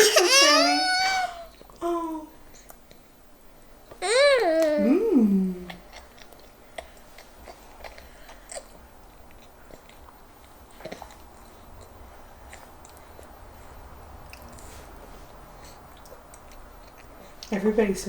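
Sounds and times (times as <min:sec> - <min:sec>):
steady low hum: 0:00.0 - 0:18.0
toddlers chewing and smacking: 0:01.3 - 0:17.8.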